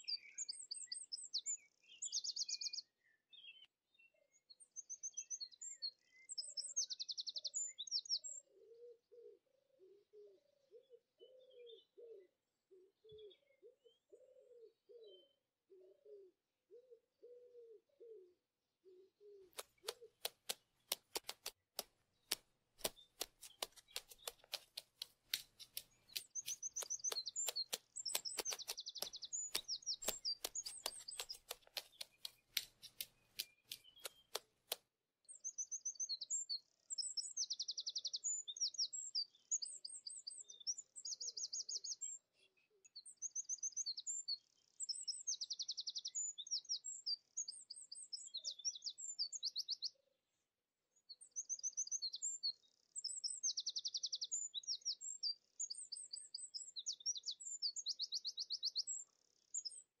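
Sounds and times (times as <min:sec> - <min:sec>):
songbird singing chirps and trills: 0:00.0 - 1:00.0
sharp clicks: 0:19.6 - 0:34.8.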